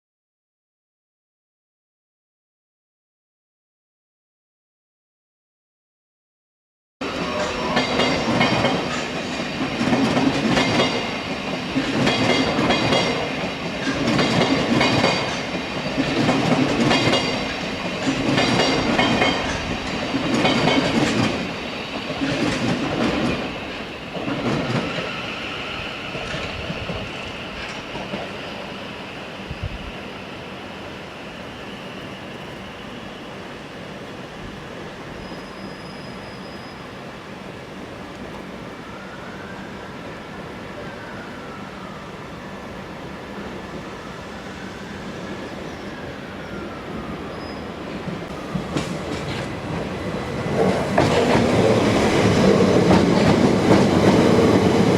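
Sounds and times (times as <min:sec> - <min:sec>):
train rumble: 0:07.0 - 0:30.7, 0:37.5 - 0:54.9
train wheels clattering over rail joints: 0:07.5 - 0:21.4, 0:48.5 - 0:54.9.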